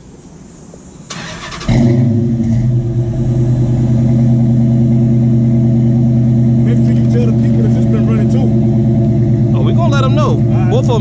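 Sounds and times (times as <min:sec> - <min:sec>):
car engine idling: 0:00.4 - 0:11.0
starter motor cranking: 0:06.6 - 0:08.5.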